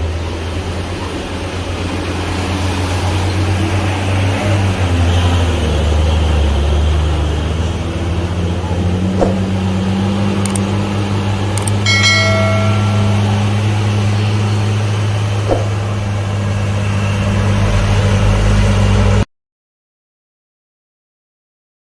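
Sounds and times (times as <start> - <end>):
large vehicle engine droning: 0.0 - 19.3
ringing metallic tone: 11.6 - 16.1.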